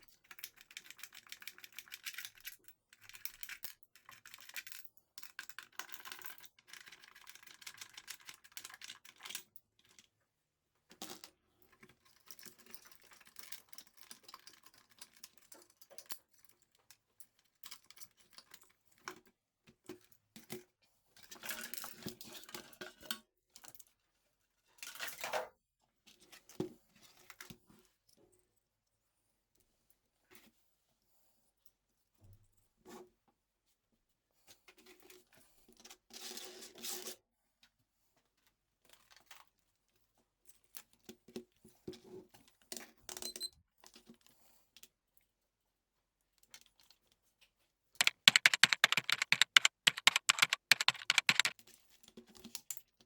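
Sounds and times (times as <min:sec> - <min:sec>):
small objects clicking and rustling: 0:48.0 - 0:51.5.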